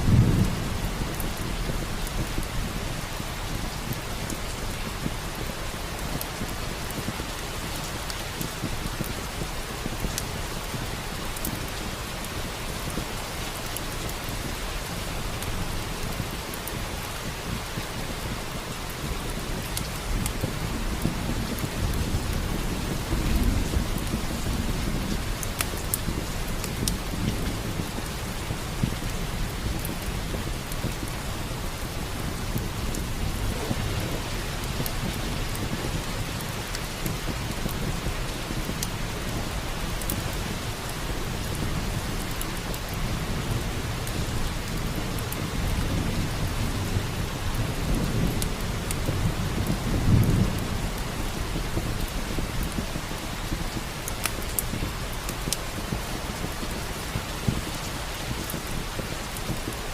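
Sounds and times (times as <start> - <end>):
thunder rumbling: 0.0 - 5.5, 19.1 - 57.7
heavy rain: 0.0 - 59.9
small crackles: 53.4 - 59.8.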